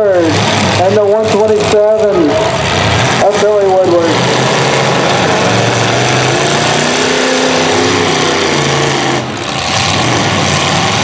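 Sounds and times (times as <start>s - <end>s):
car engines revving hard: 0.0s - 11.0s.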